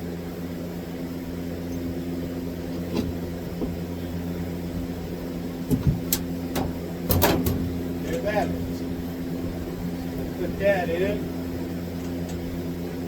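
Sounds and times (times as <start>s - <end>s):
low machine hum: 0.0s - 13.0s
short knocks: 5.7s - 7.8s.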